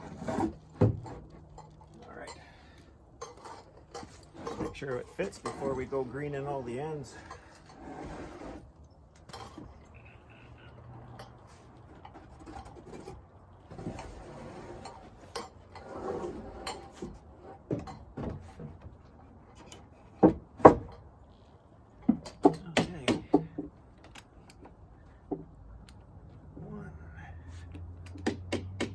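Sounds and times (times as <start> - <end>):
lumber rubbing and shuffling: 0.0 - 2.2, 3.3 - 8.8, 11.4 - 20.9
knocks on wooden boards: 20.2 - 21.0, 22.0 - 23.8, 28.1 - 28.9.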